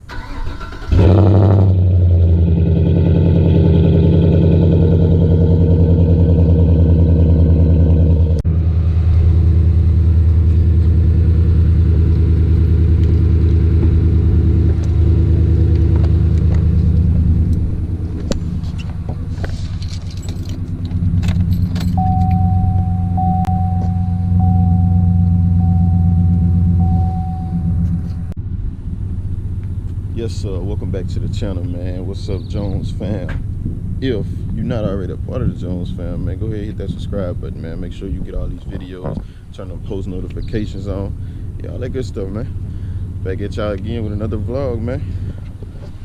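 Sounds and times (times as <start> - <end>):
truck engine idling: 2.1 - 37.3
steady high tone: 21.9 - 28.4.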